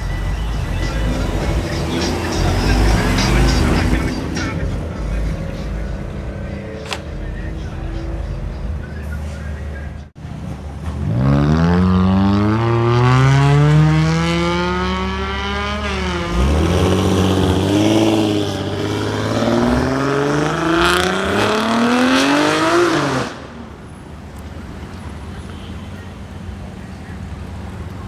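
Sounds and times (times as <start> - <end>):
car engine revving hard: 0.0 - 6.2, 10.9 - 23.6.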